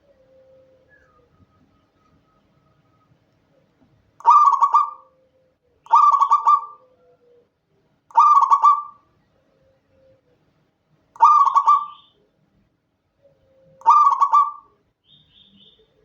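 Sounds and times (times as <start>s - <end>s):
dove cooing: 0.0s - 1.4s, 4.2s - 7.5s, 8.1s - 10.3s, 11.2s - 12.2s, 13.2s - 14.8s.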